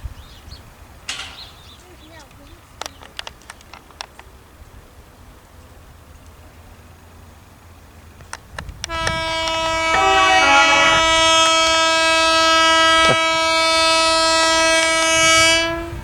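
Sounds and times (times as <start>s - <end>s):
train horn blast: 8.8s - 16.0s.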